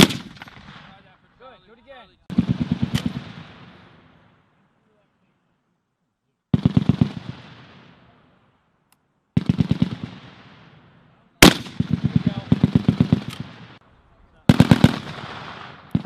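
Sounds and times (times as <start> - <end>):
rolling echo: 6.6 - 16.0.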